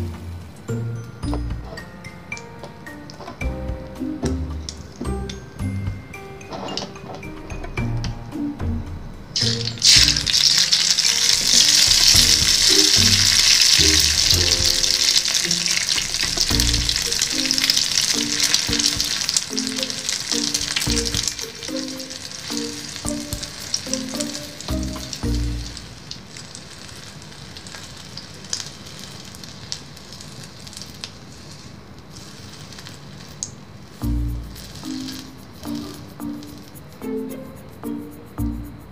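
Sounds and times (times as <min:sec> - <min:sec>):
background music with light melody: 0:00.0 - 0:26.0, 0:34.0 - 0:38.9
egg sizzling in hot oil: 0:09.4 - 0:36.8.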